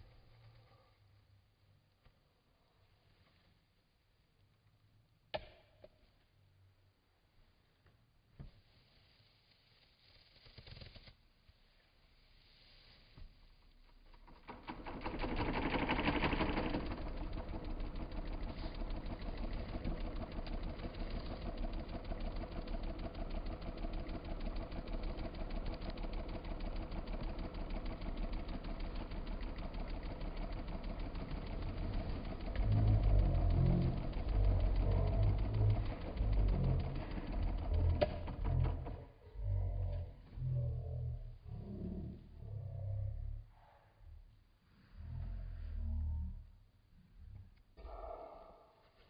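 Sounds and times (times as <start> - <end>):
electric fan humming and rattling: 13.6 - 39.2.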